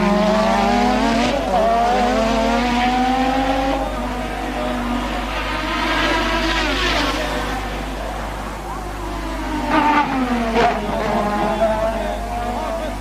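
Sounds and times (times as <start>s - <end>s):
racing car engines at high revs: 0.0s - 13.0s.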